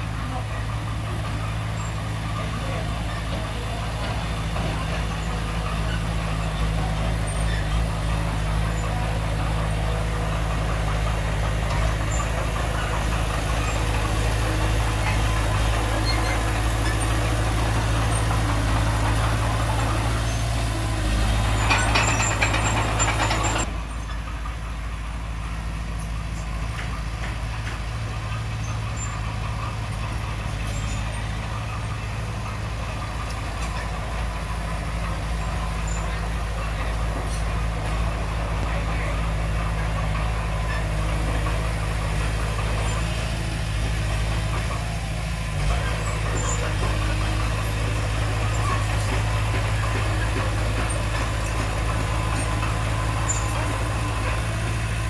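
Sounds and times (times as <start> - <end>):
diesel engine running: 0.0 - 55.0
machinery clattering: 1.0 - 24.0, 29.2 - 55.0.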